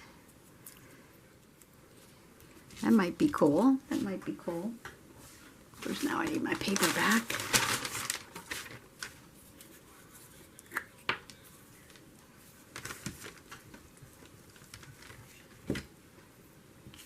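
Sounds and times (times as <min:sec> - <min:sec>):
paper rustling: 0:05.3 - 0:15.8.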